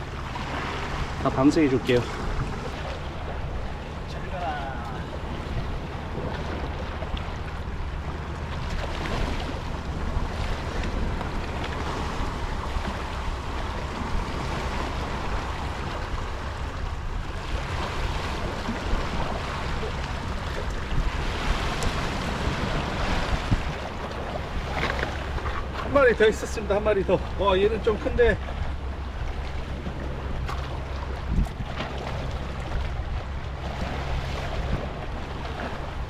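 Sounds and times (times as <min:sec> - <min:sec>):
surf washing against rocks: 0:00.0 - 0:36.0
wind rumbling on microphone: 0:00.0 - 0:36.0.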